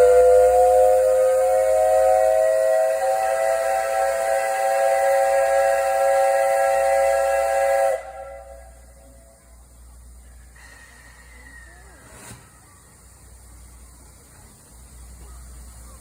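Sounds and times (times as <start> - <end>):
steam whistle blast: 0.0 - 9.0
faint hiss: 0.0 - 16.0.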